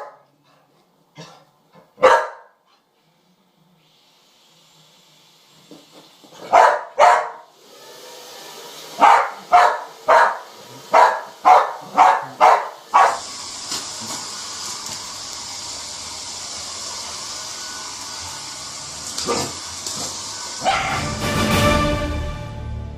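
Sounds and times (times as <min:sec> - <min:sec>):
dog barking: 0:02.0 - 0:02.6, 0:06.4 - 0:07.5, 0:09.0 - 0:13.3, 0:20.6 - 0:21.0
hair dryer blowing: 0:04.0 - 0:22.4.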